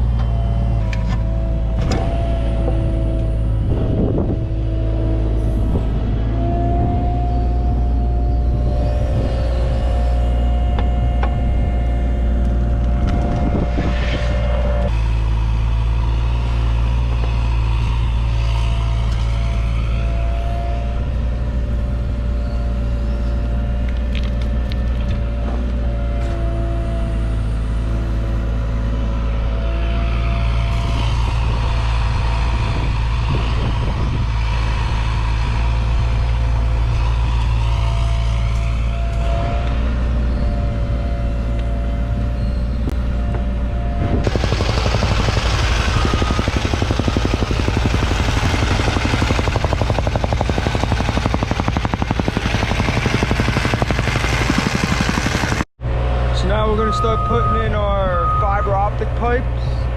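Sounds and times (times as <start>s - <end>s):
steady whine: 0.0s - 24.8s, 29.4s - 59.4s
excavator diesel engine running: 43.0s - 55.7s.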